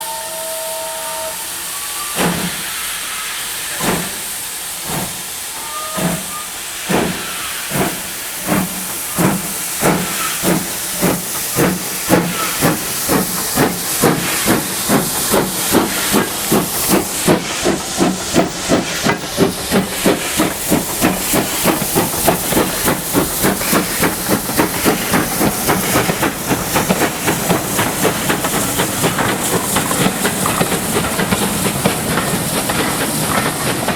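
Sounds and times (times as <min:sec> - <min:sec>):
steam whistle: 0:00.0 - 0:03.8, 0:05.5 - 0:07.6
steam hissing: 0:00.0 - 0:33.9
steam locomotive exhaust beats: 0:00.0 - 0:33.9.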